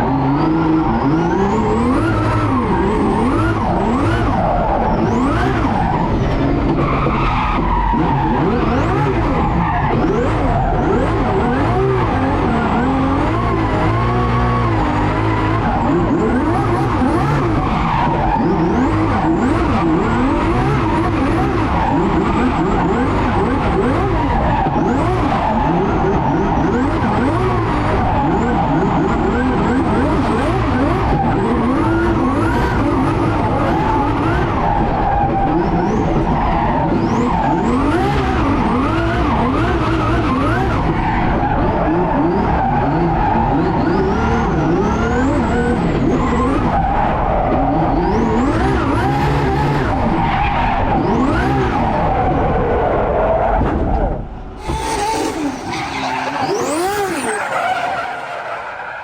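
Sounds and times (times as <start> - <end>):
car engines revving: 0.0 - 59.0
tyre and road noise: 0.0 - 59.0.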